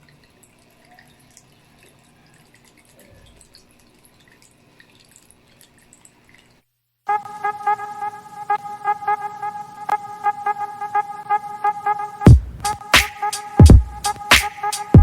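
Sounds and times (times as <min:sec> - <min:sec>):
water trickling and dripping: 0:00.0 - 0:06.7.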